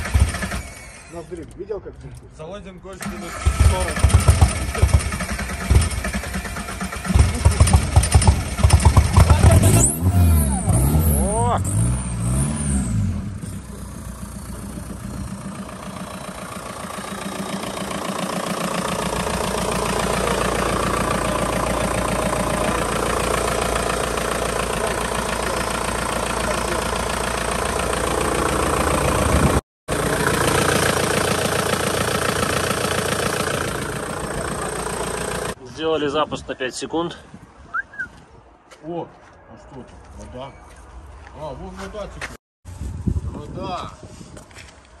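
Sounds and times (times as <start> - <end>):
car engine idling: 3.3 - 11.5, 13.2 - 35.6.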